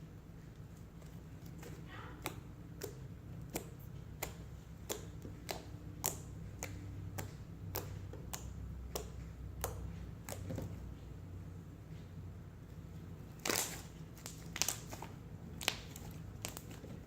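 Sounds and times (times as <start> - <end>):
slime clicking and popping: 1.5 - 10.6.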